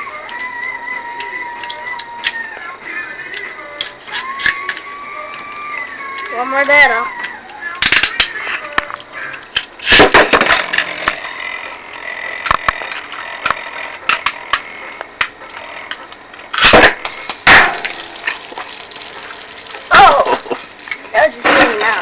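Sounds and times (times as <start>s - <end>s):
spinning tops high whine: 0.0s - 22.0s
spinning tops clashing clicks: 16.5s - 21.8s.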